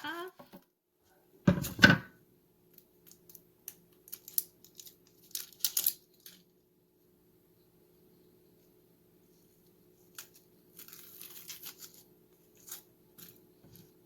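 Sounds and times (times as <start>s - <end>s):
onion skin crackling: 10.0s - 13.9s.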